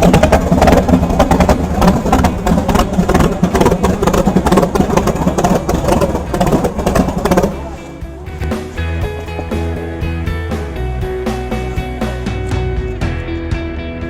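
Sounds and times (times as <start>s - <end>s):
car engine running loudly: 0.0s - 8.8s.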